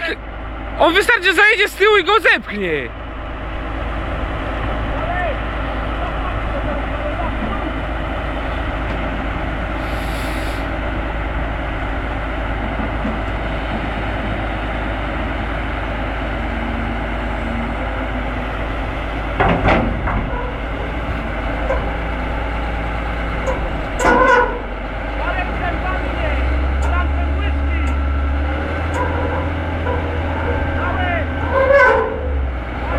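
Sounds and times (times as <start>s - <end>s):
diesel machinery running: 0.0s - 32.9s
short hiss: 9.8s - 10.7s
loud clattering knock: 19.4s - 20.5s.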